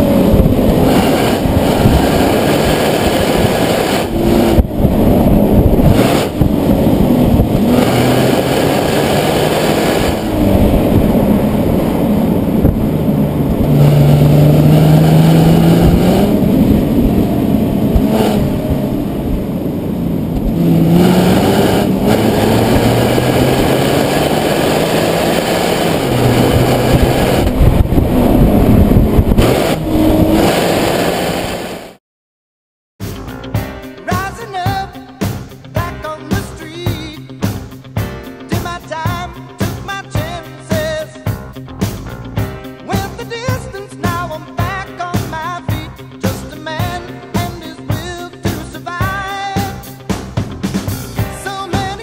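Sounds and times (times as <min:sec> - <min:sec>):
car engine accelerating hard: 0:00.0 - 0:32.0.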